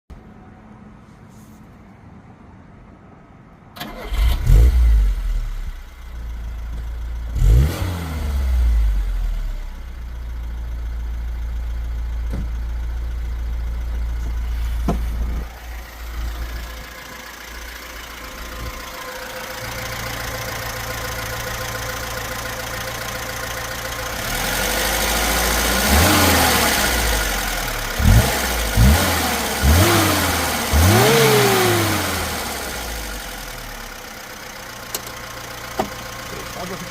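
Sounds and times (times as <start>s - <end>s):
car engine starting and idling: 2.6s - 36.9s
engine revving: 3.8s - 5.9s, 7.2s - 9.8s, 15.4s - 33.7s.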